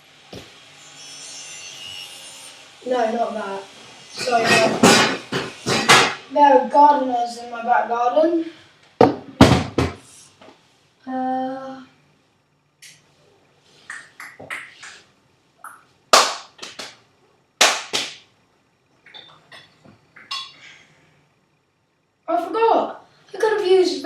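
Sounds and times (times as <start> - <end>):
kitchen utensils and dishes clattering: 4.2 - 6.2, 19.1 - 20.7.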